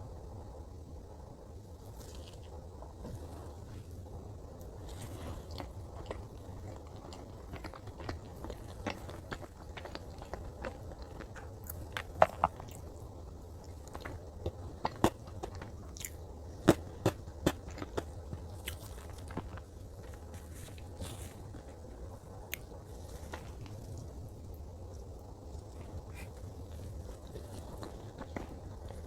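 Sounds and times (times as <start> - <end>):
chewing with wet mouth clicks: 5.5 - 13.0, 13.6 - 20.2.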